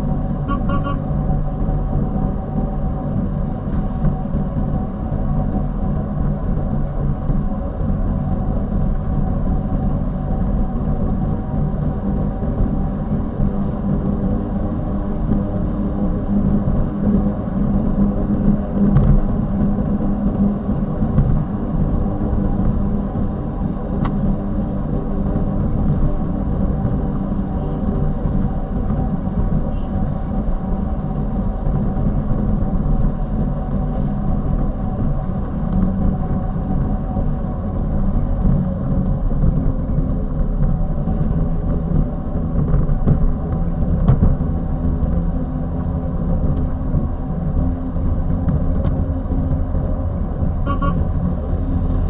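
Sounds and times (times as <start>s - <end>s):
vehicle engine and road noise: 0.0s - 52.0s
horn beeps: 0.5s - 1.0s, 50.6s - 51.1s.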